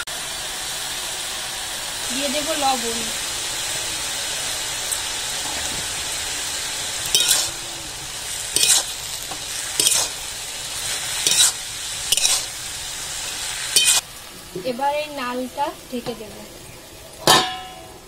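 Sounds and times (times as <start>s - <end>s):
vegetables sizzling in hot oil: 0.0s - 18.0s
spatula scraping a wok: 4.8s - 14.0s.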